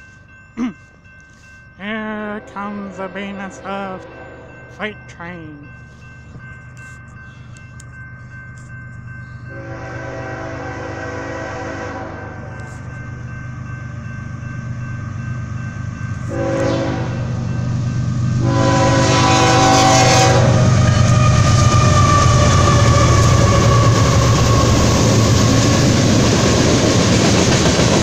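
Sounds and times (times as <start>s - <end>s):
locomotive horn blasts: 9.5s - 12.4s, 16.3s - 17.3s, 18.4s - 22.2s
train wheels on rails: 11.1s - 28.0s.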